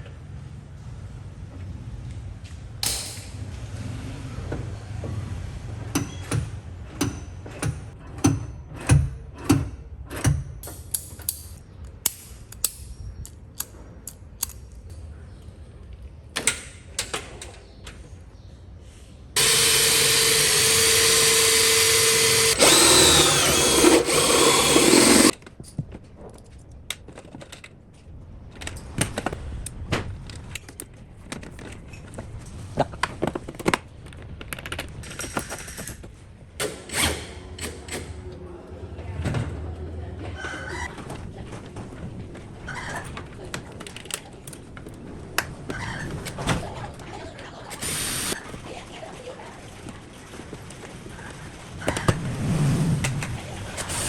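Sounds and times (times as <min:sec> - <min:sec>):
knocks and clicks of hand work: 0:05.9 - 0:12.8
power tool whining: 0:19.4 - 0:25.3, 0:47.8 - 0:48.4.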